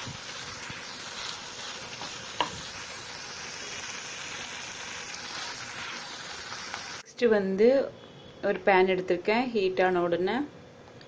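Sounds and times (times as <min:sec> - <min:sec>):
masala sizzling: 0:00.0 - 0:07.4.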